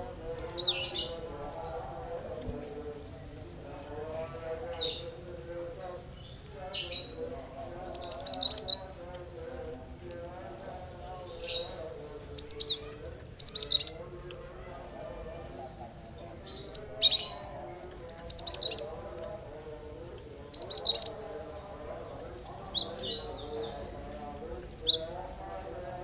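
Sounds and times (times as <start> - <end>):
bird singing short sharp phrases: 6.2 - 8.9, 12.4 - 14.0, 20.5 - 21.2, 22.4 - 23.7, 24.5 - 25.2.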